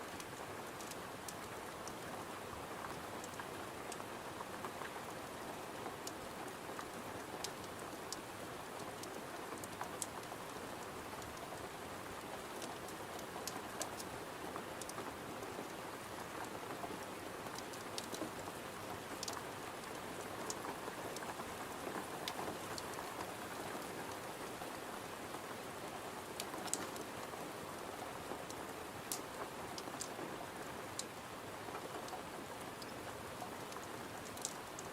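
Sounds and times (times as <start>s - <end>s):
rain on a window: 0.0s - 34.9s
sharp clicks and crackles: 33.6s - 34.9s.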